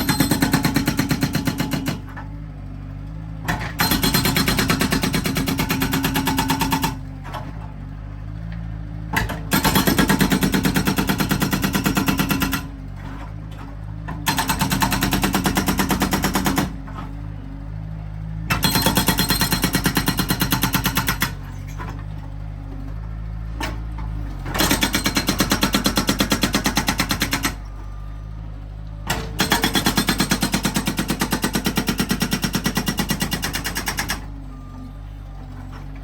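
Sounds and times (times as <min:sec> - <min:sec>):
hydraulic breaker hammering: 0:00.0 - 0:02.2, 0:03.5 - 0:07.0, 0:09.2 - 0:12.7, 0:14.2 - 0:16.8, 0:18.5 - 0:22.0, 0:24.4 - 0:27.7, 0:29.1 - 0:34.6
skid steer engine running: 0:00.0 - 0:36.0.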